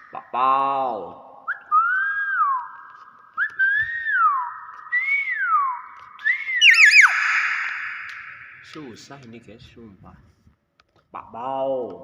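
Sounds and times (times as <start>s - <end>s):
myna whistling: 1.5s - 8.8s.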